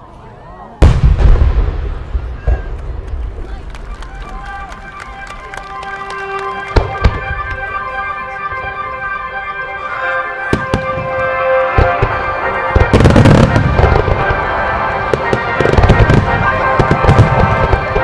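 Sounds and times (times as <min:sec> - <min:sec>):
fireworks bursting: 0:00.8 - 0:08.3, 0:10.4 - 0:18.0
music with sustained tones: 0:04.8 - 0:18.0.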